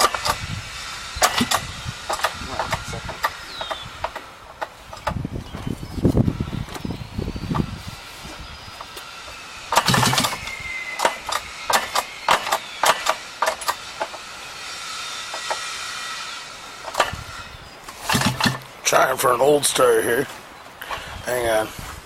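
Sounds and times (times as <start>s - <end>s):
snowmobile engine cranking: 0.0s - 5.2s, 6.6s - 19.9s
faint steady whine: 0.0s - 22.0s
sharp clicks and knocks: 1.2s - 5.6s, 9.7s - 14.2s, 17.9s - 18.7s.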